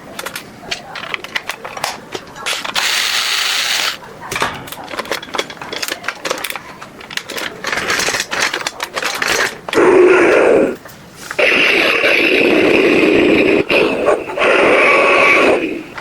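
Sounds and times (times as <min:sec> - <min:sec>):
plastic toy parts clicking and rattling: 0:00.1 - 0:09.8
loud steady sound: 0:02.7 - 0:04.0, 0:11.4 - 0:16.0.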